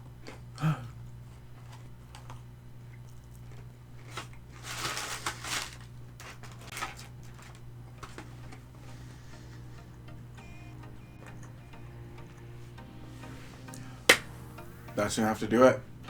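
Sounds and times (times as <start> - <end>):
eating crispy fried chicken: 0.0 - 9.7
steady low hum: 0.0 - 16.0
crisp crackling: 1.1 - 11.7.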